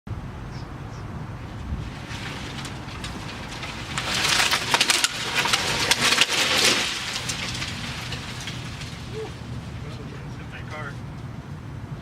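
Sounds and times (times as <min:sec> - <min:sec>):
tree cracking and snapping: 0:01.8 - 0:10.7.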